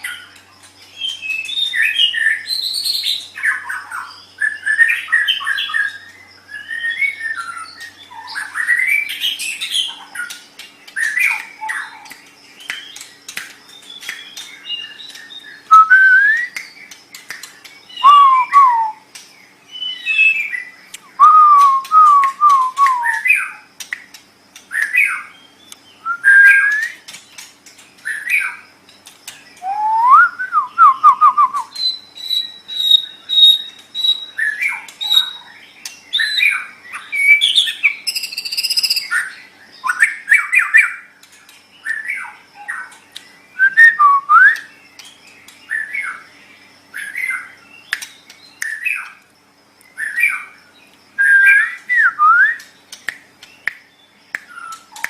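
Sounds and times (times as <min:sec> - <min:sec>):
bird singing whistled phrases: 0:01.0 - 0:10.0, 0:13.7 - 0:16.9, 0:17.9 - 0:19.1, 0:19.7 - 0:23.6, 0:24.7 - 0:27.1, 0:29.6 - 0:41.0, 0:43.5 - 0:44.8, 0:51.2 - 0:52.8, 0:54.4 - 0:55.0
bird sharp clicks: 0:09.9 - 0:15.3, 0:16.3 - 0:19.3, 0:20.9 - 0:25.1, 0:47.9 - 0:49.2, 0:52.5 - 0:55.0.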